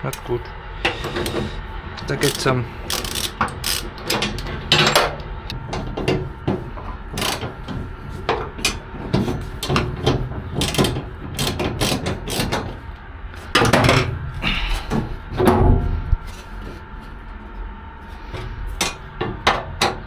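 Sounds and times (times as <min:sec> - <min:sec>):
hand tools and metal parts clattering: 0:00.0 - 0:05.2, 0:08.6 - 0:12.8.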